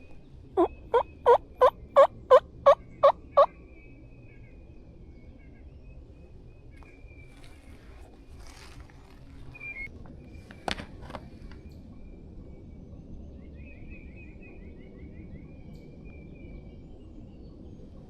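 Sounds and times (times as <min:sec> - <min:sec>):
bird trill: 0:00.0 - 0:03.5
low steady rumble: 0:00.0 - 0:18.0
songbirds singing: 0:00.0 - 0:18.0.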